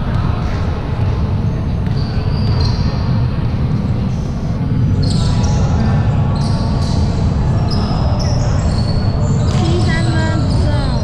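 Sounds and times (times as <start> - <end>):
sneaker squeaks on floor: 1.9 - 3.0, 5.0 - 5.6.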